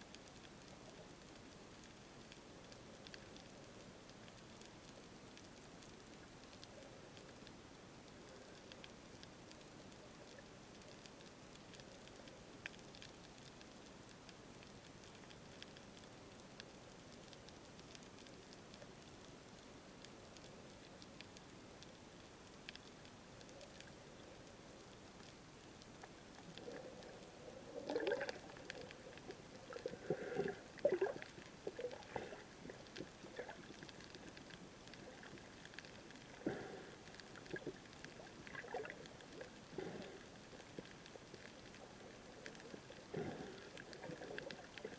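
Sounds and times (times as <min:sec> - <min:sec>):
water sloshing and gurgling: 0:26.4 - 0:35.4, 0:36.4 - 0:44.9.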